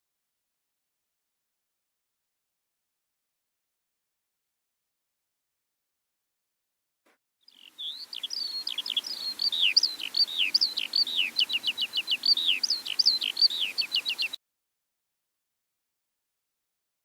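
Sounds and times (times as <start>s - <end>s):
songbird singing: 7.5s - 14.4s.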